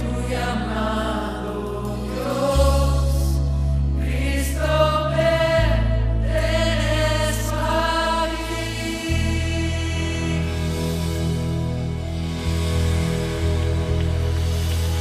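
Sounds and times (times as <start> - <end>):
voices singing worship song: 0.0 - 11.8
held keyboard chords: 0.0 - 15.0.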